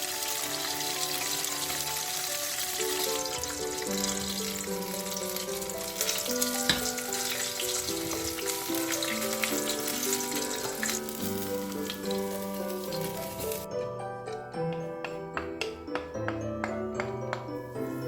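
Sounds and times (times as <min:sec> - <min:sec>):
chicken frying in oil: 0:00.0 - 0:13.7
gentle background music: 0:00.0 - 0:18.0.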